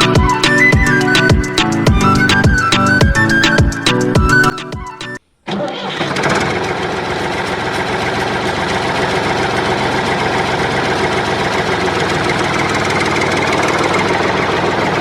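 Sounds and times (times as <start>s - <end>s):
small engine idling: 5.9s - 15.0s.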